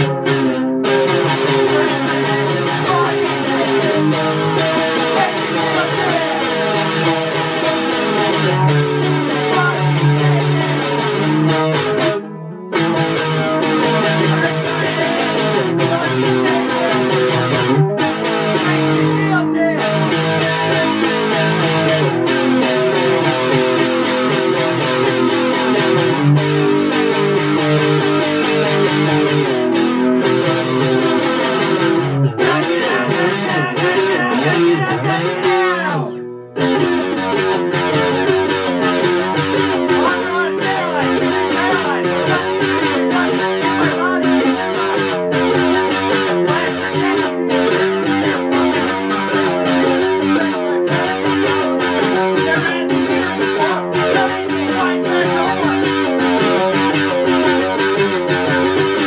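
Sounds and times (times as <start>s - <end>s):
electric guitar riff: 0.0s - 59.0s.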